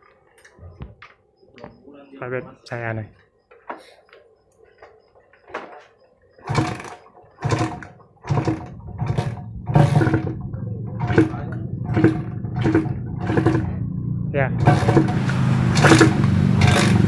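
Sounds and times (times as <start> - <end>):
two-stroke engine running: 6.4 - 17.0.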